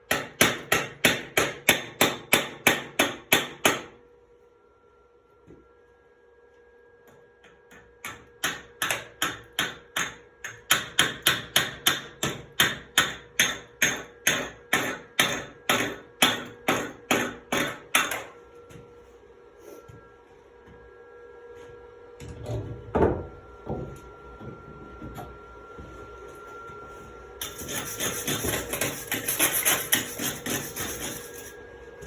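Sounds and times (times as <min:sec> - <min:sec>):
chipping hammer striking metal: 0:00.1 - 0:03.9, 0:08.0 - 0:18.3.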